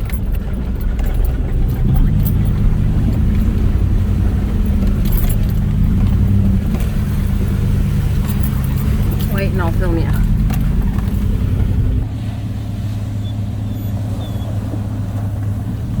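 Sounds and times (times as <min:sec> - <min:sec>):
loose items rattling: 0:00.0 - 0:12.0
vehicle engine low drone: 0:00.0 - 0:16.0.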